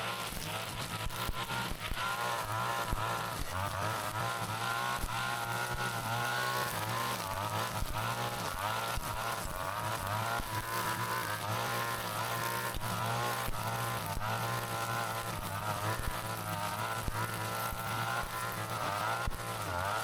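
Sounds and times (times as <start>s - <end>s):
brush cutter engine running: 0.0s - 20.0s.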